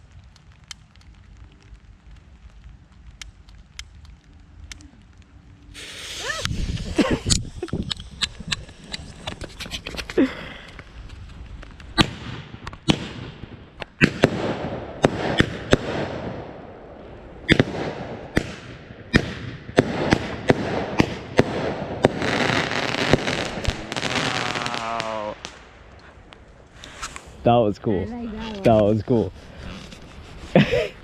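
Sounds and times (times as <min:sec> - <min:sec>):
crackling hiss: 0:00.0 - 0:31.0
firework cake firing: 0:05.7 - 0:26.0, 0:26.7 - 0:27.5.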